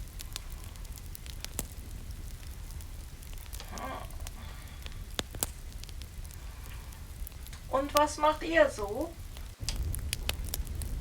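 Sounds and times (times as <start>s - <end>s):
fire rumble: 0.0s - 11.0s
wood fire crackling: 0.0s - 11.0s
person humming: 3.6s - 4.2s.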